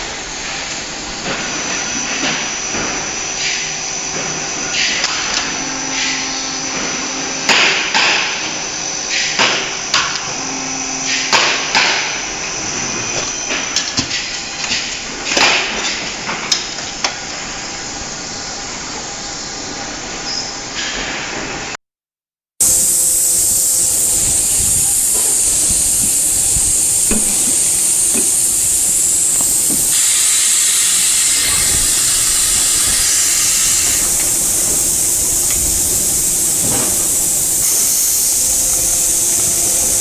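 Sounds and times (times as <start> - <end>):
high-pitched pressurized air hiss: 22.6 - 40.0.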